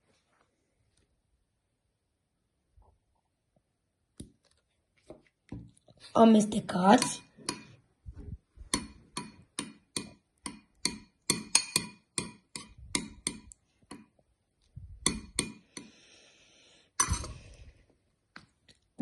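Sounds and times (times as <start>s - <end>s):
utensil stirring liquid: 5.1s - 7.8s, 8.6s - 14.2s.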